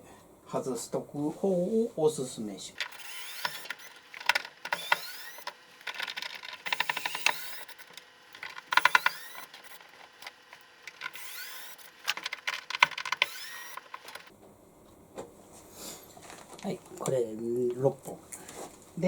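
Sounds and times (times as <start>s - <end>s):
electric screwdriver motor whine: 2.8s - 14.3s
rattling clicks: 2.8s - 14.3s.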